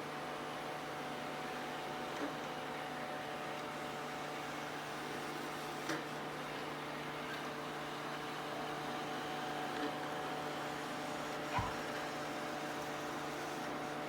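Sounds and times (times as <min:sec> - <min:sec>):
robot vacuum cleaner whirring: 0:09.7 - 0:13.8.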